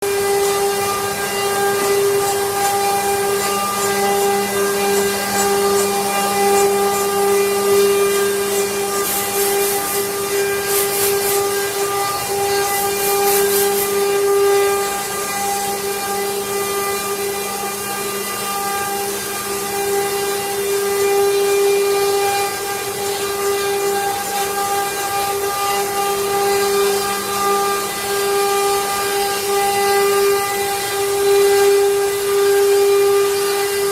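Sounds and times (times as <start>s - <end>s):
router spindle whine: 0.0s - 33.9s
sharp hissing cutting noise: 0.1s - 16.2s.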